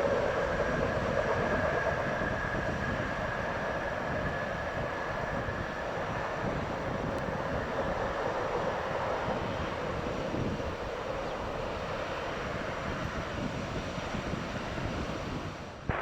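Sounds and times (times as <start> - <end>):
distant jet engines roaring: 0.0 - 16.0.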